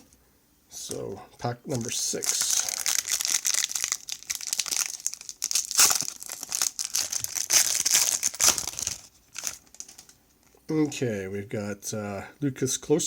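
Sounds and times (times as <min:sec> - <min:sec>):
wrapper being torn and crinkled: 0:01.7 - 0:10.1.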